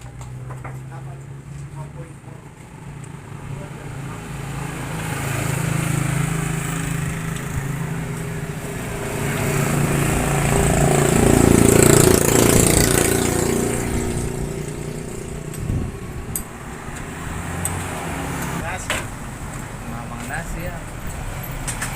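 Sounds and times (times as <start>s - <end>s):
small motorcycle engine running: 5.5s - 16.2s.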